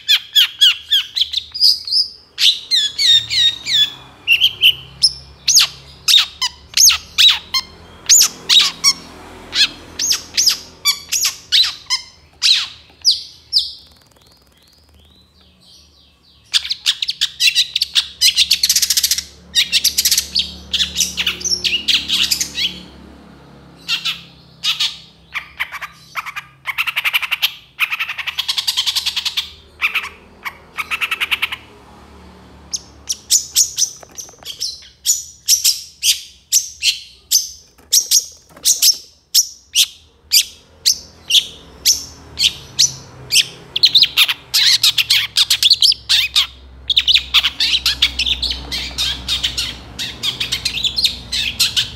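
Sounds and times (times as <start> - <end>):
bird chattering song: 0.0 - 23.0, 23.8 - 31.7, 32.7 - 51.9
bird sharp calls: 0.0 - 23.0, 23.8 - 31.7, 32.7 - 51.9.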